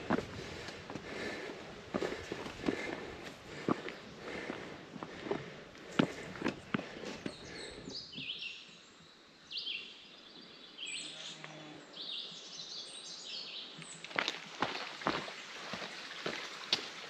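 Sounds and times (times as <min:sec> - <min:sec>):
footsteps crunching: 0:00.0 - 0:07.9, 0:14.0 - 0:16.9
songbird singing: 0:00.0 - 0:16.1.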